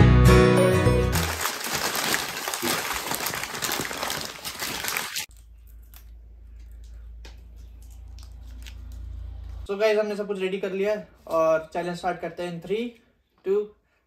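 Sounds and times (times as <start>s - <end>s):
paper wrappers crinkling: 1.2s - 7.0s.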